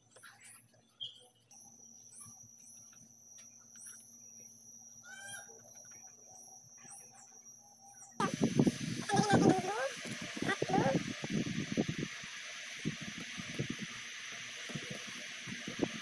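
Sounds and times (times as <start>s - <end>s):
faint high bird chirps: 0.0s - 8.2s
steady high-pitched whine: 0.0s - 16.0s
low hum: 1.4s - 16.0s.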